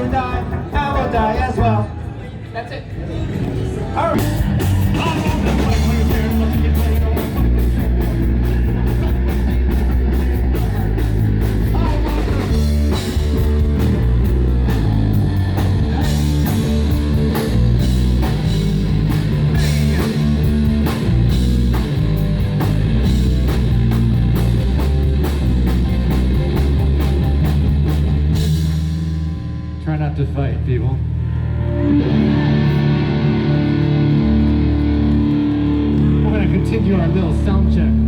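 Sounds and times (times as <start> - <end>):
rock band playing: 0.0 - 1.8, 3.3 - 38.0
electric guitar: 3.1 - 29.8, 30.8 - 38.0
drum kit beat: 4.2 - 29.6.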